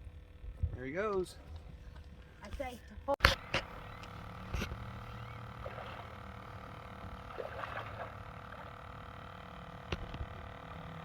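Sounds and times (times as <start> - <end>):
steady low hum: 0.0 - 11.0
soft water sounds: 4.6 - 9.4.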